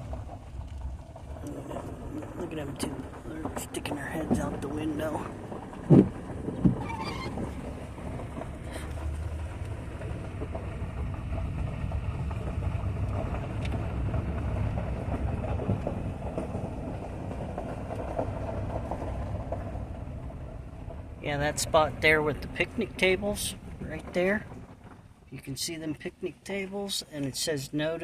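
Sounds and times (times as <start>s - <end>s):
vehicle engine rumble: 0.0s - 28.0s
tyre noise: 5.9s - 7.9s.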